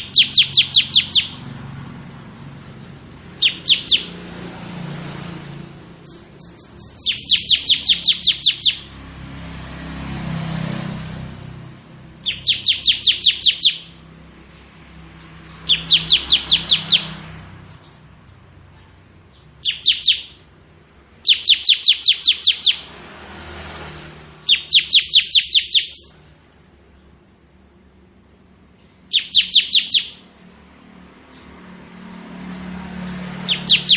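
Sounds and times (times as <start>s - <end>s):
bird singing rapid high notes: 0.0s - 1.7s, 2.8s - 4.2s, 5.5s - 9.0s, 12.0s - 14.1s, 15.1s - 20.5s, 21.1s - 22.9s, 24.4s - 26.3s, 28.4s - 30.3s, 33.3s - 33.9s.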